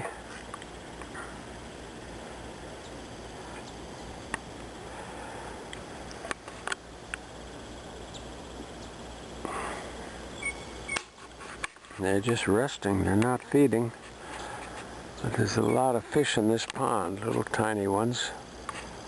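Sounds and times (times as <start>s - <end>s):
outdoor background hiss: 0.0s - 19.0s
breathy sniff: 9.4s - 10.1s.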